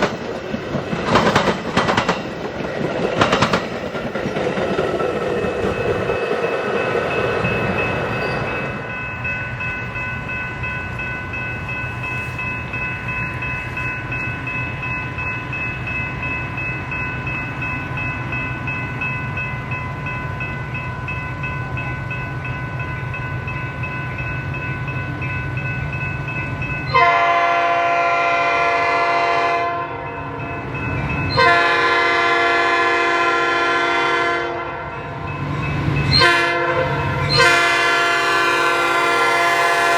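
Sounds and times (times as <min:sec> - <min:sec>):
train rumbling past: 0:00.0 - 0:39.9
high ringing tone: 0:05.6 - 0:27.4
locomotive air horn blasts: 0:26.9 - 0:30.0, 0:31.3 - 0:34.9, 0:36.1 - 0:39.9.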